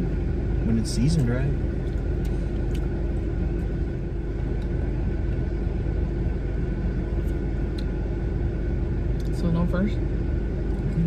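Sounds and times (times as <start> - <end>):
car cabin rumble: 0.0 - 8.2
faint steady hum: 0.0 - 11.0.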